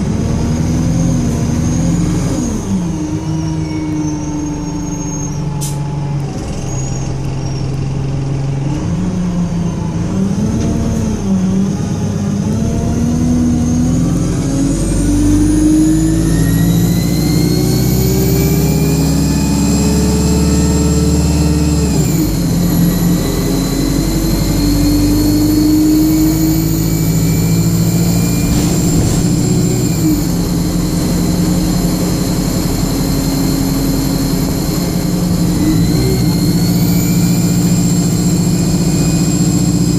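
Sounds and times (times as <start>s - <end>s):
bus engine accelerating: 0.0s - 39.9s
high screaming whine: 22.8s - 38.6s.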